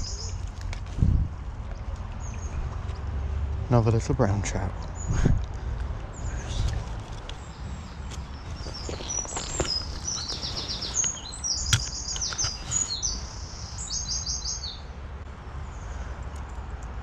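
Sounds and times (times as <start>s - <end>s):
steady low rumble: 0.0s - 10.3s
songbird trilling: 6.2s - 14.9s
sharp click: 11.6s - 12.8s.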